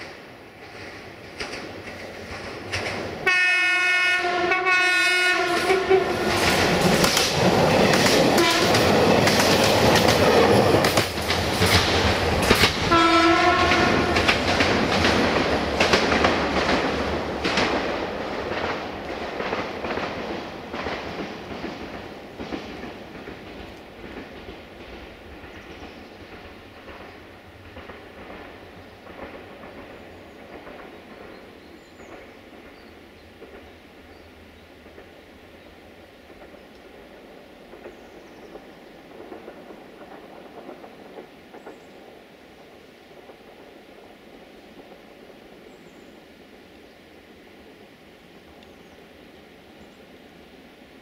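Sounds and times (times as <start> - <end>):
train wheels clicking over rail joints: 0.0 - 48.9
train horn blasts: 3.2 - 6.4, 8.3 - 8.9, 12.9 - 14.4.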